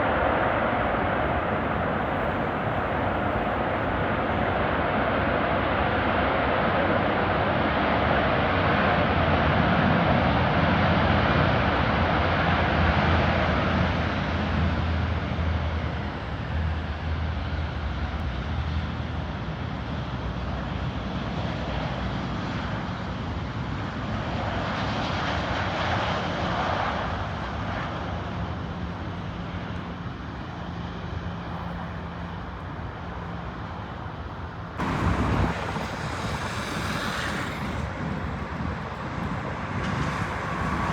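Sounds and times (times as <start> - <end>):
jet airliner engines roaring: 0.0 - 40.9
sudden burst of noise: 34.8 - 40.9.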